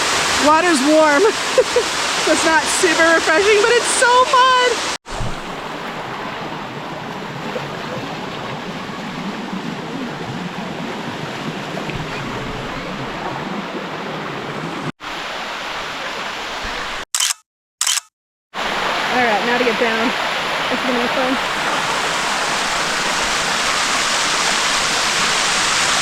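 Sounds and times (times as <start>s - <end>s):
waterfall rushing over rocks: 0.0s - 6.1s, 18.6s - 26.0s.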